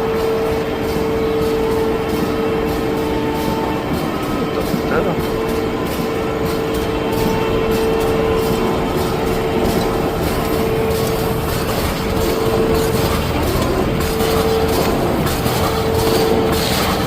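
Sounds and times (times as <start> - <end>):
constant machine hum: 0.0 - 17.0
machine mechanical din: 0.0 - 17.0.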